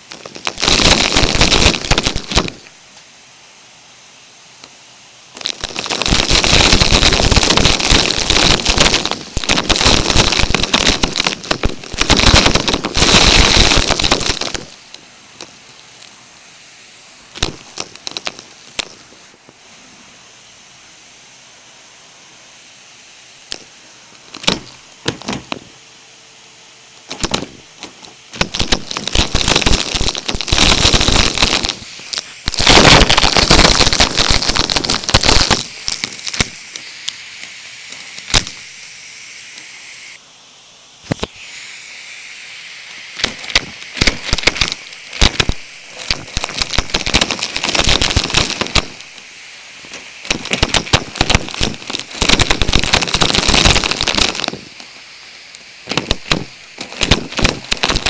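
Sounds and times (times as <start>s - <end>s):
debris crackling through vacuum tube: 0.0s - 2.8s, 5.3s - 16.6s, 17.3s - 19.6s, 23.5s - 25.7s, 27.0s - 38.9s, 42.9s - 58.0s
vacuum cleaner suction hiss: 0.0s - 58.0s.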